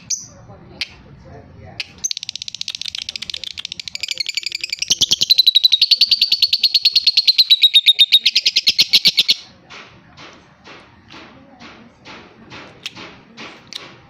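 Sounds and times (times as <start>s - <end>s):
lovebird chattering trill: 2.0s - 9.5s
soft bird chirps: 2.0s - 9.5s.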